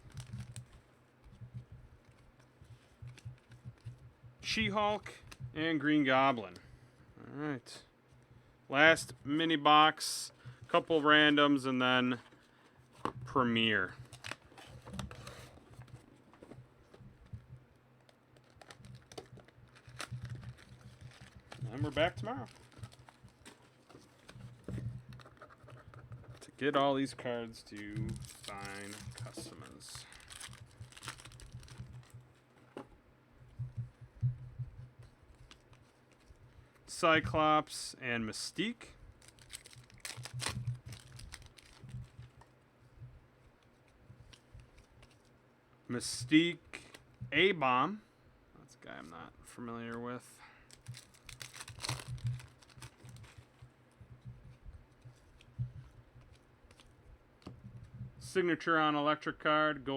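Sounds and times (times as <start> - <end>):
trading cards and wrappers handled: 0.0 - 5.4, 10.3 - 37.1, 38.5 - 45.4, 50.6 - 58.0
low steady hum: 0.0 - 59.9.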